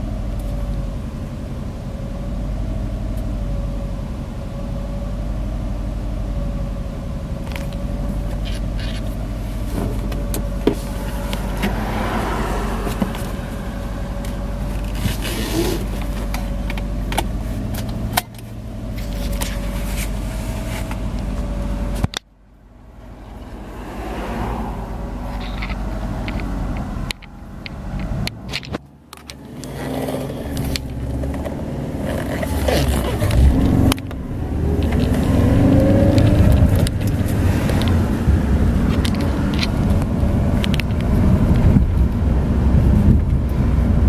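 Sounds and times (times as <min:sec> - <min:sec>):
steady whine: 0:00.0 - 0:28.5
car engine idling: 0:00.0 - 0:44.0.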